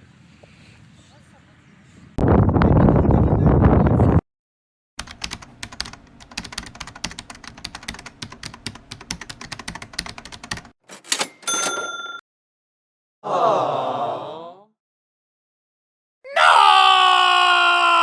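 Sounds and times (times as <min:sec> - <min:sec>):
wind buffeting microphone: 0:02.2 - 0:04.2.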